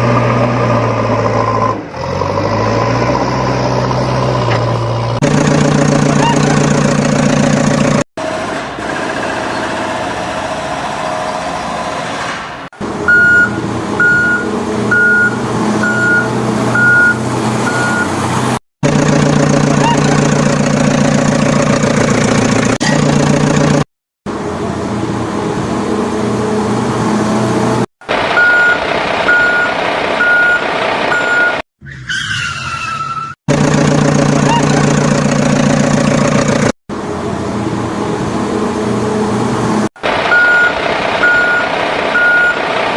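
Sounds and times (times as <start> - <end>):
heavy truck engine running: 0.0 - 31.6, 33.5 - 42.9
reversing beeper: 13.1 - 18.1, 40.3 - 42.6.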